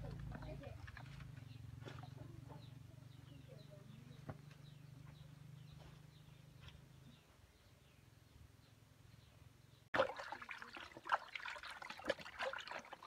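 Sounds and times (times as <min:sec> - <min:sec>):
small birds chirping: 0:00.0 - 0:09.9.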